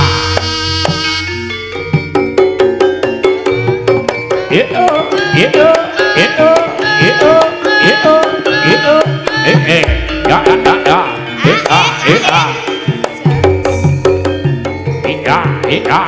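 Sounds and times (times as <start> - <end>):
hand drums pitch-gliding strokes: 0.0 - 15.6
ringing metal notes: 1.0 - 15.2
deep gong note: 9.8 - 11.4.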